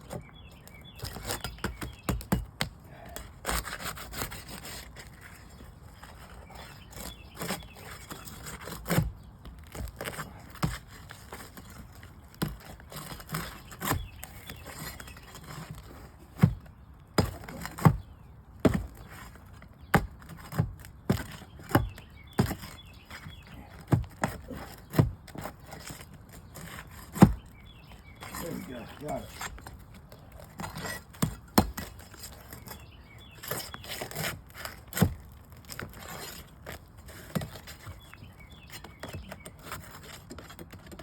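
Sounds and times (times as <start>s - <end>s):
tool scraping shingles: 0.0s - 41.0s.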